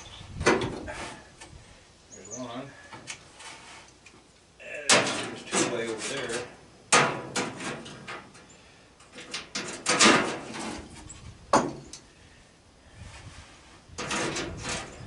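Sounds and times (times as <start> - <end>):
sheet metal scraping: 4.9 - 8.5, 9.1 - 11.3, 12.9 - 15.0
metal knocks: 11.5 - 12.0.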